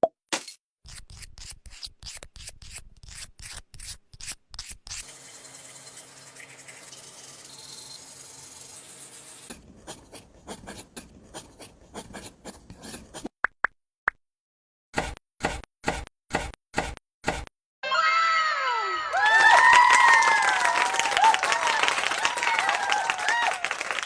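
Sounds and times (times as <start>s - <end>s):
hand sanding rough surface: 8.6s - 13.3s.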